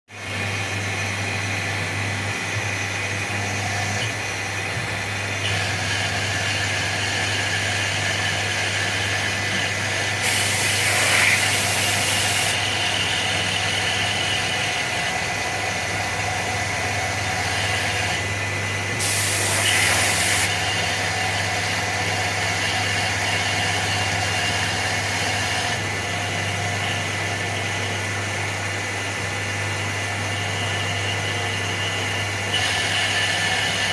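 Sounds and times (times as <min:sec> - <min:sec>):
milling machine hum: 0:00.1 - 0:33.9.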